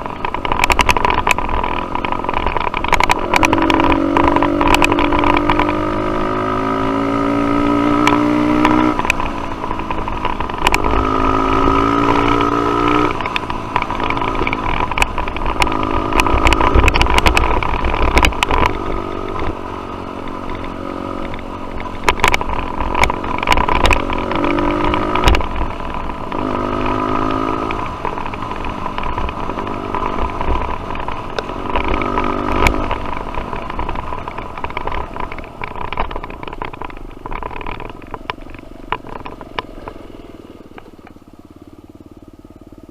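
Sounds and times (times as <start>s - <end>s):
sharp knocks and rattles: 0.0s - 6.1s, 7.0s - 40.1s.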